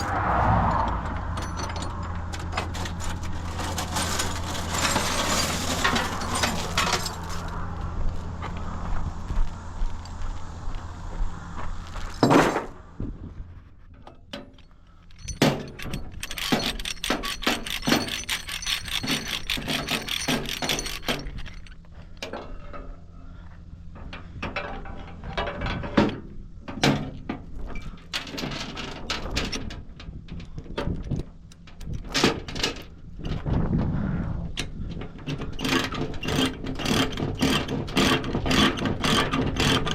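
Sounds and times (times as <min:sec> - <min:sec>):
knocks and clatter: 0:00.0 - 0:07.7, 0:12.1 - 0:22.9, 0:34.6 - 0:39.9
low hum: 0:00.0 - 0:32.0, 0:32.8 - 0:35.5.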